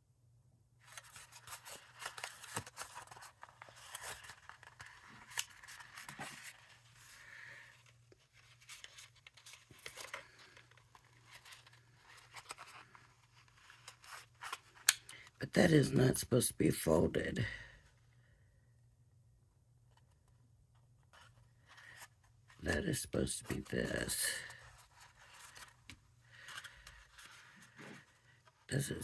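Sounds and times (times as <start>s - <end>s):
paper card rustling: 0.8s - 15.8s, 21.0s - 28.9s.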